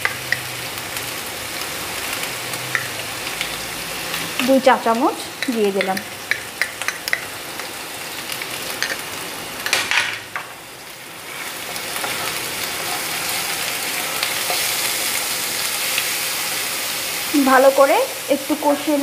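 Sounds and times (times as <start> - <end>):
paste sizzling in hot oil: 0.0 - 9.8, 10.5 - 19.0
spatula knocking on pan: 5.4 - 7.3
spatula scraping pan: 11.2 - 15.2.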